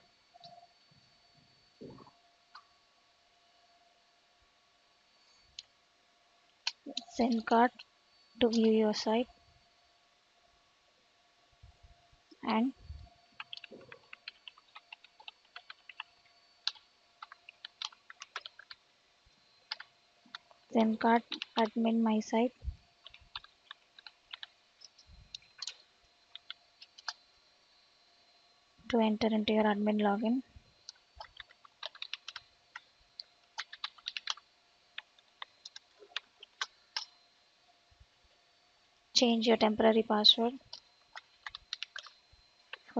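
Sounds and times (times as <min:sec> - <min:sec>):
keyboard typing: 0:06.6 - 0:08.9, 0:13.4 - 0:18.8, 0:19.6 - 0:21.9, 0:23.0 - 0:27.3, 0:30.8 - 0:37.2, 0:40.6 - 0:42.9.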